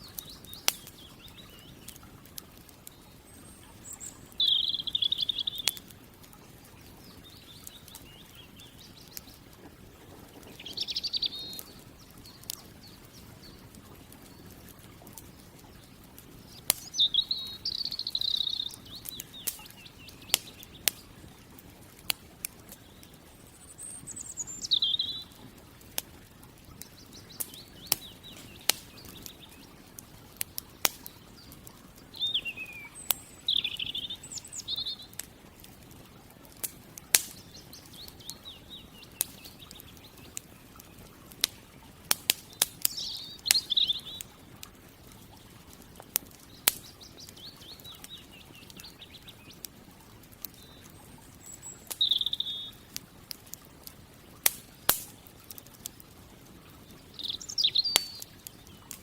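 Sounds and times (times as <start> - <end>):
campfire crackling: 0.0 - 59.0
bird singing high phrase: 3.0 - 5.8, 10.5 - 13.7, 16.8 - 20.9, 22.8 - 25.4, 32.1 - 35.1, 42.9 - 44.3, 50.6 - 52.8, 57.0 - 58.9.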